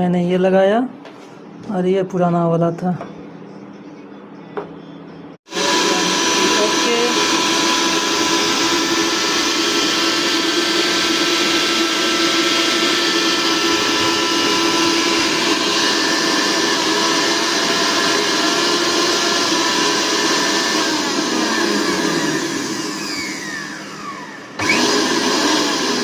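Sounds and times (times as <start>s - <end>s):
mixer grinder motor whining: 5.5s - 26.0s.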